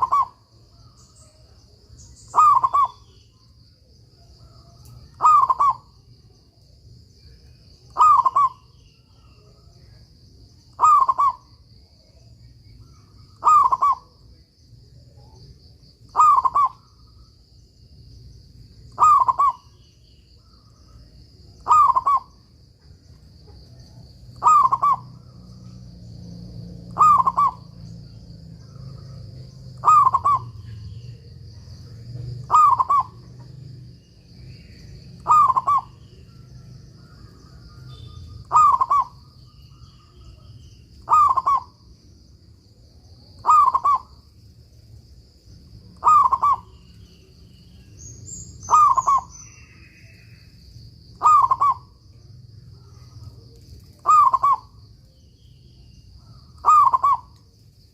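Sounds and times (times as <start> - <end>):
dove cooing: 0.0 - 1.5, 2.3 - 3.1, 4.3 - 6.0, 7.9 - 8.7, 10.7 - 11.6, 13.3 - 14.2, 16.1 - 16.9, 18.9 - 19.8, 21.6 - 22.4, 23.4 - 25.5, 26.9 - 27.8, 28.5 - 33.6, 35.2 - 40.4, 41.0 - 41.8, 43.4 - 44.1, 46.0 - 47.0, 48.7 - 50.0, 51.1 - 52.0, 52.8 - 54.8, 56.2 - 57.3.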